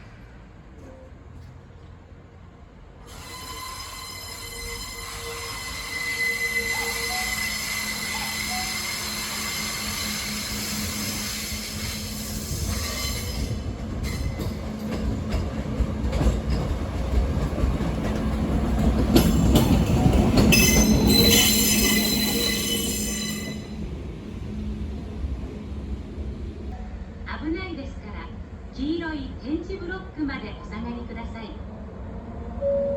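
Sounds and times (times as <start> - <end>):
train rumble: 0.0 - 32.9
train wheels squealing on rails: 3.0 - 15.4, 18.9 - 23.8
wheels clacking over rail joints: 13.8 - 22.5.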